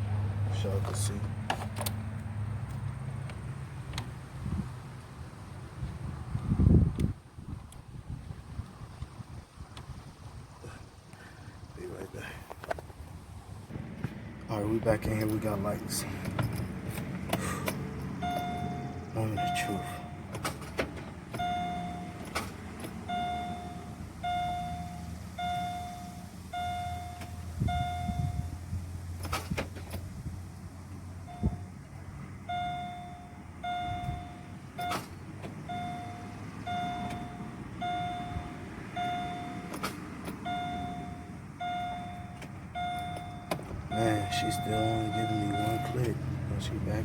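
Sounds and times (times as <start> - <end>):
dashboard warning chime beeping: 18.2 - 20.4, 21.3 - 28.6, 31.2 - 31.7, 32.4 - 46.4.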